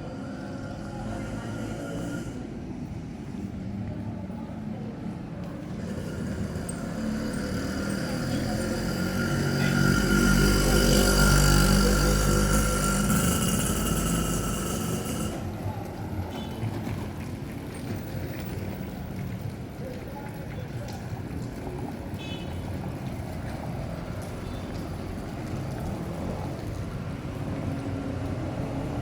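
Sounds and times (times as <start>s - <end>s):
motor vehicle driving past: 0.0s - 3.7s, 5.4s - 18.5s.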